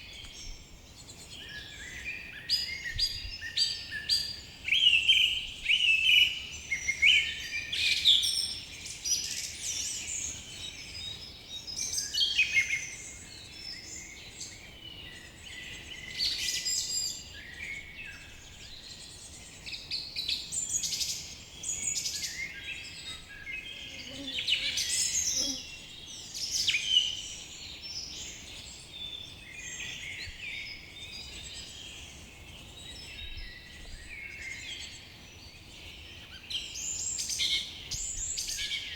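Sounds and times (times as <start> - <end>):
songbirds singing and calling: 0.0 - 38.9.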